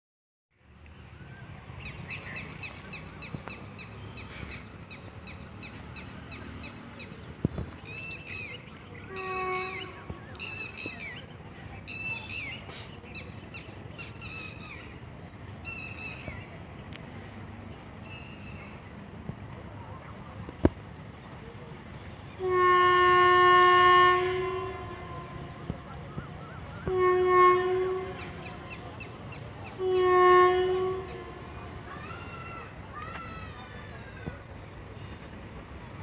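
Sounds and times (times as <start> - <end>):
low steady rumble: 0.6 - 36.0
short horn-like tone: 9.1 - 10.1, 26.8 - 28.8.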